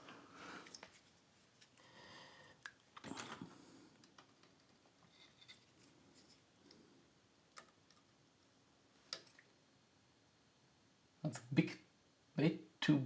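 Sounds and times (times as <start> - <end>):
faint clicks and light taps: 3.9 - 5.6.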